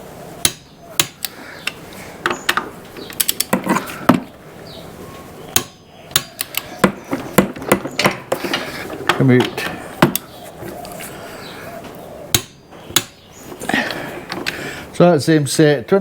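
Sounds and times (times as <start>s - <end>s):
torque wrench sharp clicks: 0.4s - 3.5s.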